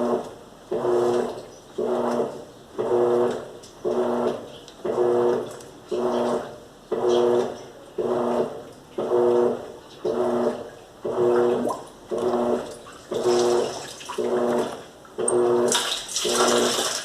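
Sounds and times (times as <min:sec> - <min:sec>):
washing machine motor hum: 0:00.0 - 0:17.0
water sloshing: 0:10.2 - 0:17.0.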